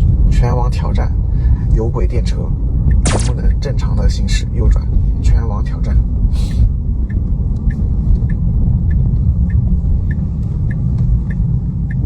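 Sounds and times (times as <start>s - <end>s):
low road rumble: 0.0s - 12.0s
turn signal ticking: 2.8s - 3.7s, 7.0s - 12.0s.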